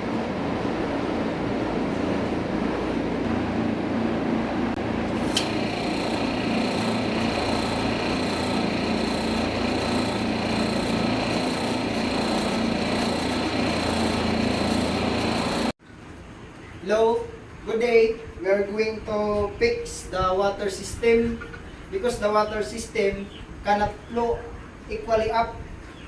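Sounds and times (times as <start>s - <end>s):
machinery humming: 0.0s - 15.8s
high steady whine: 3.0s - 15.8s.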